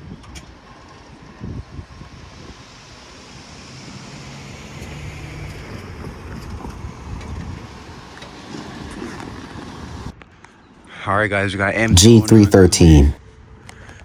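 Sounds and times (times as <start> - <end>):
freight train rumbling on rails: 3.9 - 10.1.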